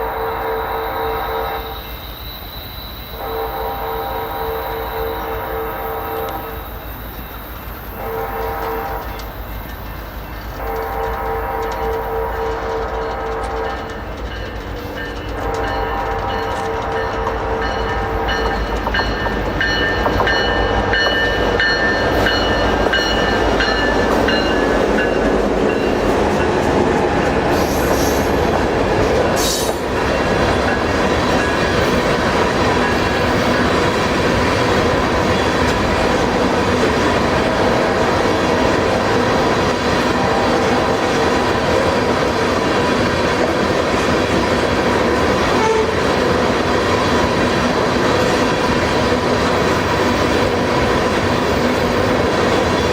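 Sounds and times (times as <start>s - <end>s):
locomotive tones: 0.0s - 52.9s
train wheels clattering on rails: 4.2s - 52.9s
locomotive engine rumble: 6.3s - 52.9s.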